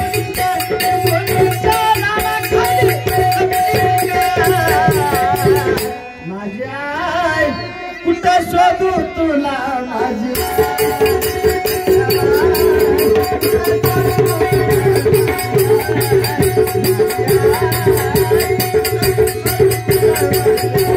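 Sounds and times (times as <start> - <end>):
fast drum beat: 0.0 - 5.8, 10.4 - 20.9.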